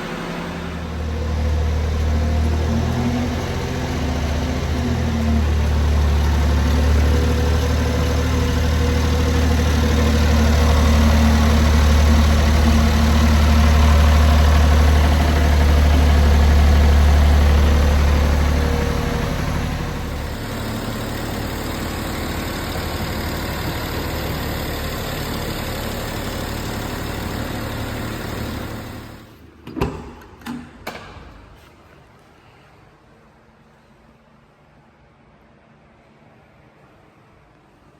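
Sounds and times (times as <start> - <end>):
truck engine running: 0.0 - 29.3
sharp clicks and knocks: 29.6 - 31.5.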